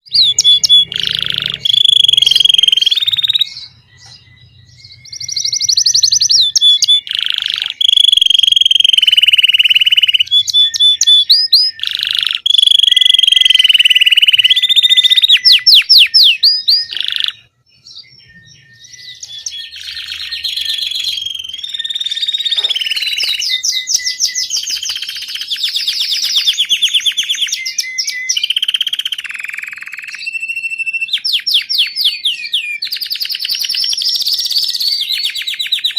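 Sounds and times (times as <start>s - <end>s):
canary singing whistles and trills: 0.0s - 35.9s.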